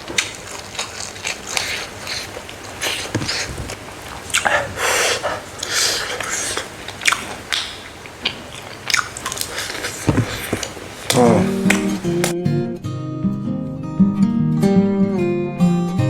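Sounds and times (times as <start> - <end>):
crunchy biting and chewing: 0.0 - 12.3.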